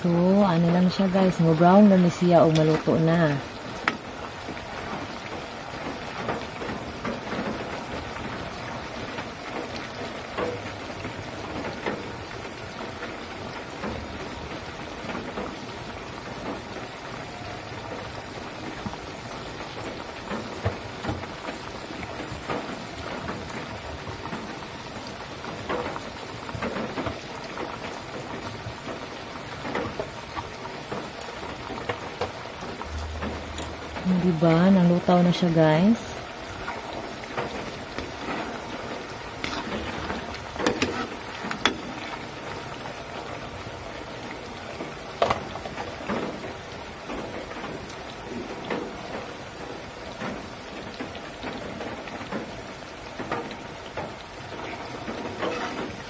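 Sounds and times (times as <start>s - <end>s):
oil sizzling and crackling: 0.0s - 56.0s
oil popping: 36.2s - 56.0s.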